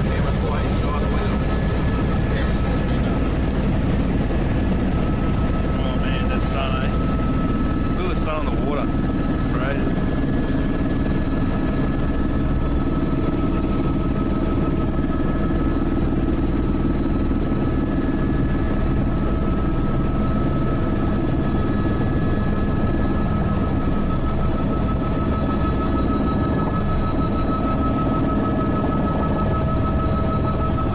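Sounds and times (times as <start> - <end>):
helicopter rotor and engine: 0.0 - 30.9.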